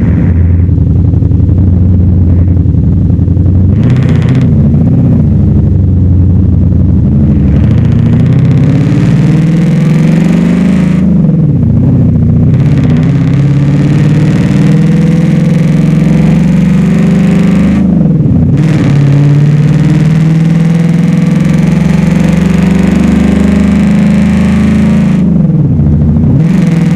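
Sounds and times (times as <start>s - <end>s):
engine revving loudly: 3.6s - 5.6s, 6.9s - 26.9s.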